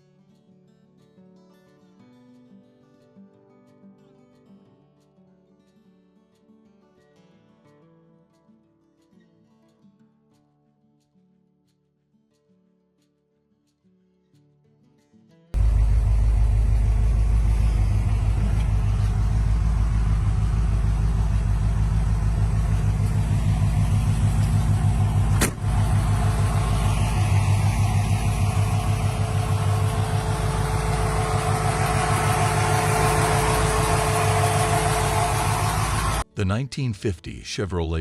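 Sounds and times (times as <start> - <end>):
car engine idling: 15.6 - 36.2.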